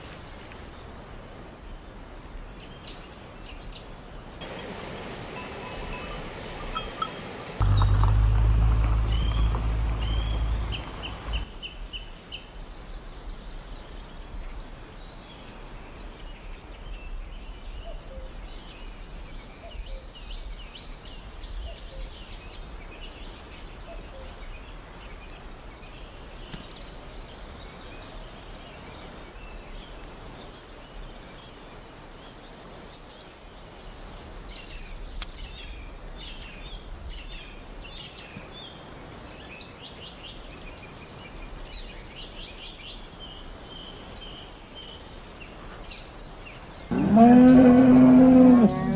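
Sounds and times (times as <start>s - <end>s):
small birds chirping: 0.0s - 11.5s
low steady hum: 4.4s - 11.4s
loud low rumble: 7.6s - 11.4s.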